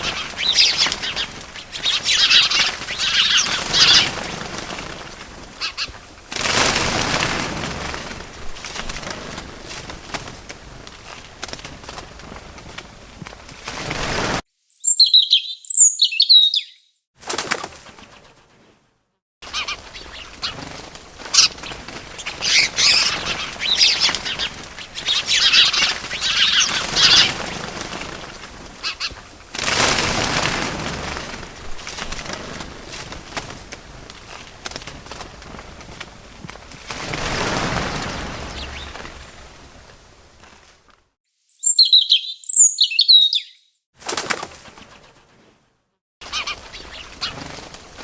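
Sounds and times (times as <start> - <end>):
small birds chirping: 0.0 - 6.0, 14.6 - 17.0, 19.4 - 29.4, 37.8 - 39.6, 41.3 - 43.8, 46.2 - 47.7
rustling noise: 0.0 - 14.4, 17.3 - 41.2, 44.0 - 48.0
wings flapping: 0.0 - 14.4, 17.2 - 18.8, 19.4 - 41.1, 44.0 - 48.0.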